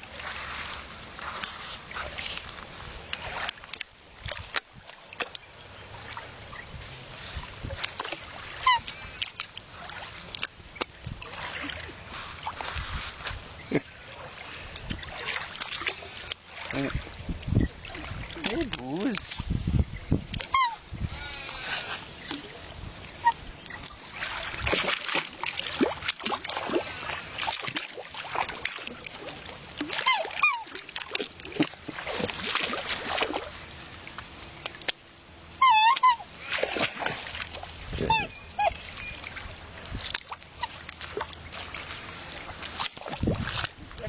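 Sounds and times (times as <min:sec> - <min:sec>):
water splashing: 0:00.0 - 0:44.0
swans bugling: 0:08.4 - 0:09.4, 0:20.4 - 0:22.2, 0:35.6 - 0:36.9, 0:37.9 - 0:39.3.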